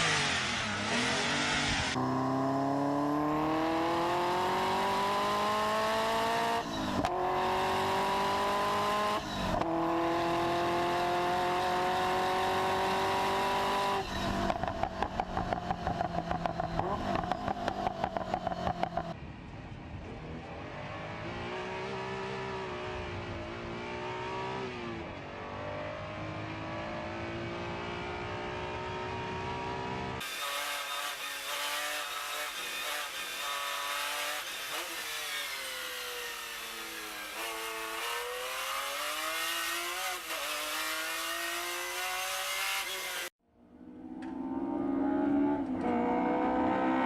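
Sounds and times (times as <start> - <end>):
supercar engine revving hard: 0.0 - 14.5, 35.7 - 43.3
supercar engine accelerating: 0.0 - 19.2, 20.0 - 30.2, 37.4 - 47.0.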